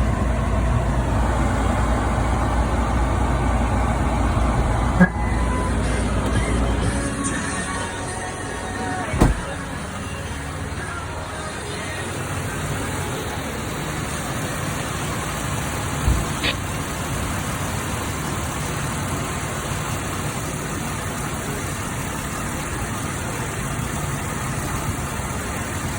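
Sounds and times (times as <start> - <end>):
engine running steadily: 0.0 - 25.9
low thump: 9.1 - 9.6.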